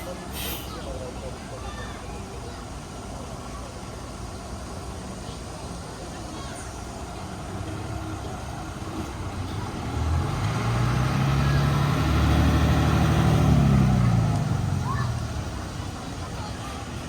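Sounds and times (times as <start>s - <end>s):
vehicle engine passing: 7.9s - 16.4s.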